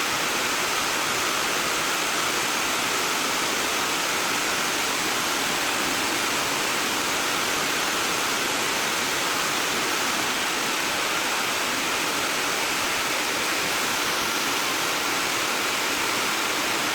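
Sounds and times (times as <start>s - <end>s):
rushing water: 0.0s - 16.9s.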